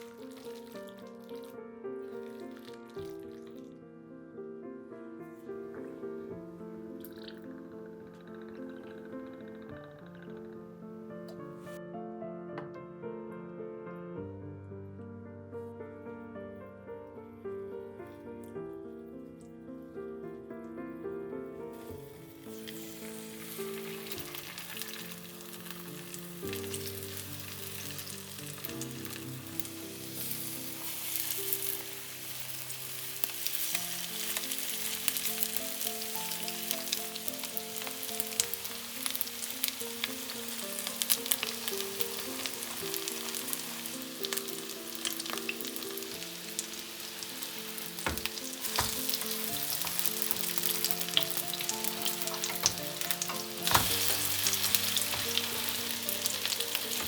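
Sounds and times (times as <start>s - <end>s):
food sizzling in hot oil: 0.0s - 3.7s, 21.8s - 57.0s
soft background music: 0.0s - 57.0s.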